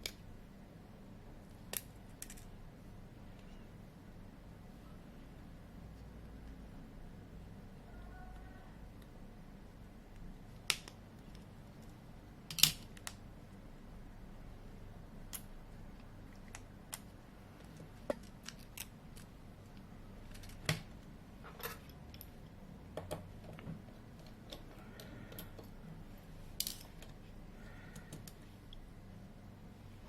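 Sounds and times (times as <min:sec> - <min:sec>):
low steady hum: 0:00.0 - 0:30.0
small tools clicking and tapping: 0:21.5 - 0:25.8.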